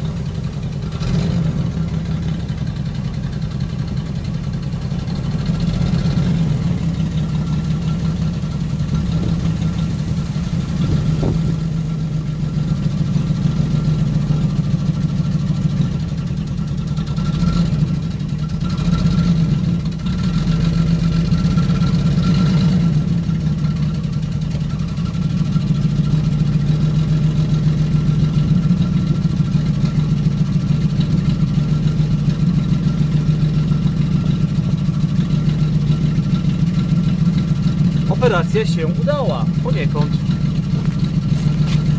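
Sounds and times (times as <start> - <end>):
car engine revving: 0.0 - 2.2, 35.0 - 41.9
car engine idling: 0.0 - 41.9.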